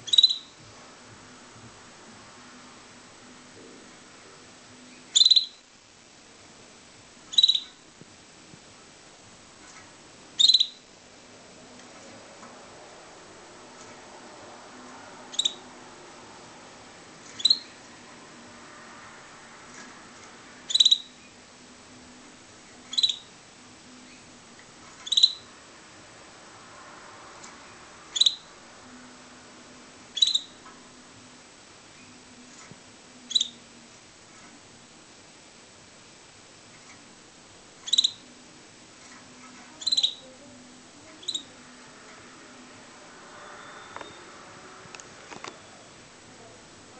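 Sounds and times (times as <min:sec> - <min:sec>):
canary chirping: 0:00.0 - 0:00.8, 0:04.8 - 0:05.8, 0:07.2 - 0:07.9, 0:09.5 - 0:10.9, 0:15.0 - 0:16.0, 0:17.1 - 0:18.2, 0:19.7 - 0:21.4, 0:22.6 - 0:25.6, 0:27.4 - 0:29.2, 0:30.0 - 0:30.8, 0:31.9 - 0:33.7, 0:37.8 - 0:38.4, 0:39.0 - 0:44.6.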